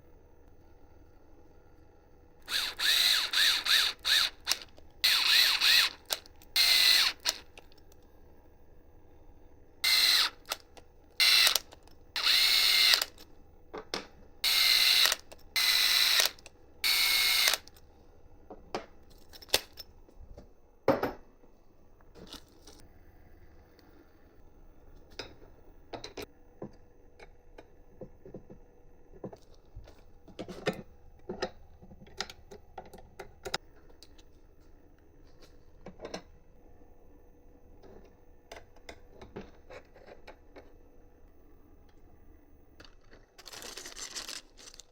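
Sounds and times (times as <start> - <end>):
power driver whining: 2.4 - 7.6, 9.8 - 13.2, 14.4 - 17.7.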